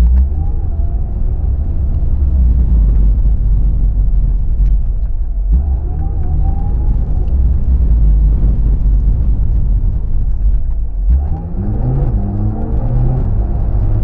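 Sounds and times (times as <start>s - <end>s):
road and wind noise rumble: 0.0s - 14.0s.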